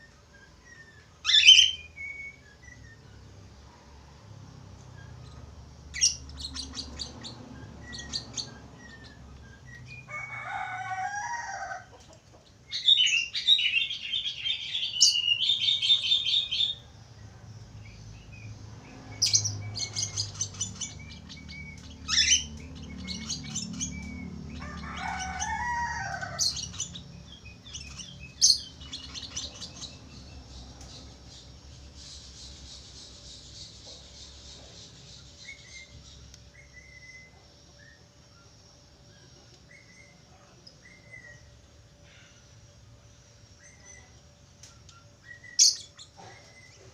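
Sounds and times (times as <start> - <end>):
budgerigar warbling and chattering: 5.1 - 9.2, 19.2 - 30.5.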